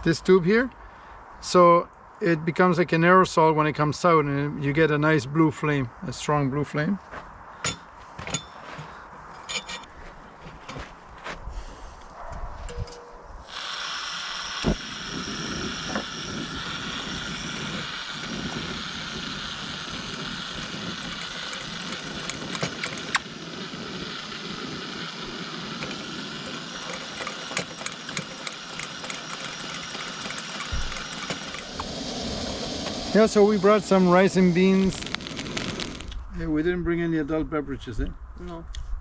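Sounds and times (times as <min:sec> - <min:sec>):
camp stove hissing: 0:13.4 - 0:36.2
sharp clicks: 0:20.9 - 0:23.3, 0:25.7 - 0:31.9, 0:34.6 - 0:36.2.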